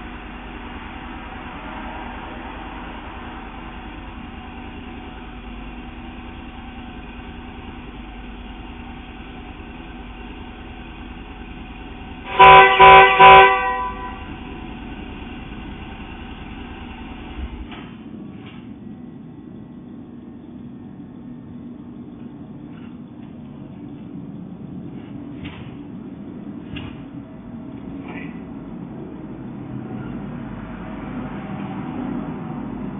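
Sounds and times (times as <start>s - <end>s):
steady low hum: 0.0s - 31.3s
car horn blasts: 12.3s - 14.5s.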